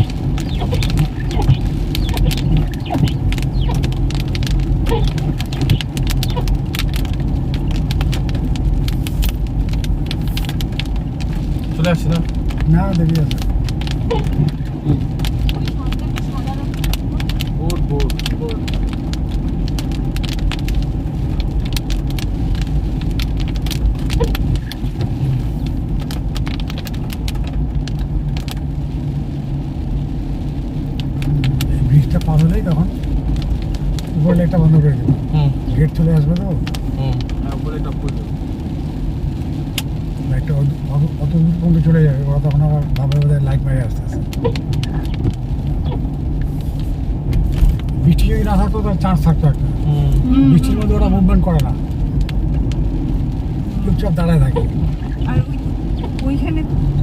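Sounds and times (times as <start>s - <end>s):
car engine and road hum: 0.0s - 57.0s
heavy rain on car roof: 0.0s - 57.0s.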